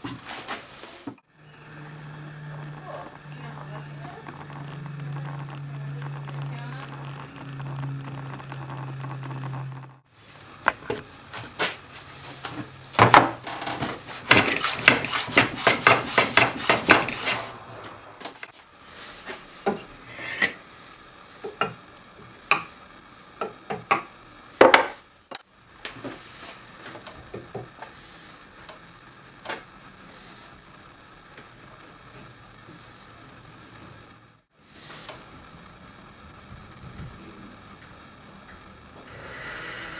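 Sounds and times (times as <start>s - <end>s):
low machine hum: 0.0s - 23.4s, 25.1s - 39.9s
tools knocking on wood: 13.0s - 17.5s.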